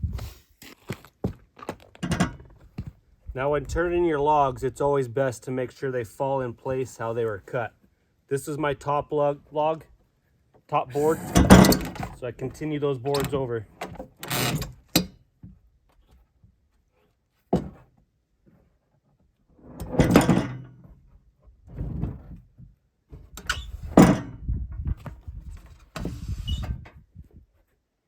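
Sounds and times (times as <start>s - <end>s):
boards scraping and sliding: 19.6s - 21.0s, 21.6s - 24.0s.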